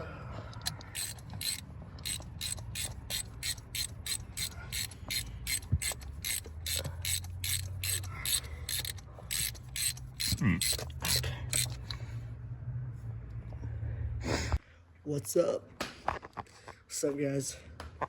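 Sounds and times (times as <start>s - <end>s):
mechanical clicking: 0.5s - 12.0s.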